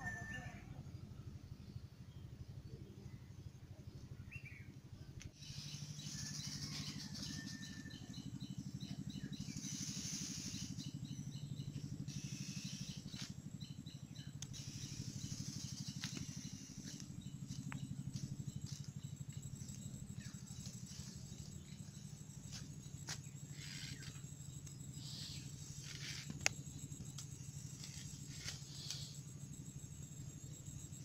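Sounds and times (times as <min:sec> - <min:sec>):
steady low hum: 0:00.0 - 0:31.0
small birds chirping: 0:05.4 - 0:29.3.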